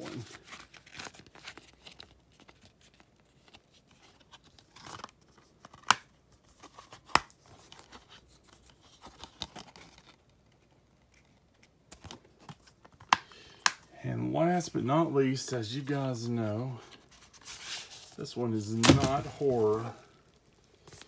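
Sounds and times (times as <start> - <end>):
cardboard rustling: 16.4 - 21.0.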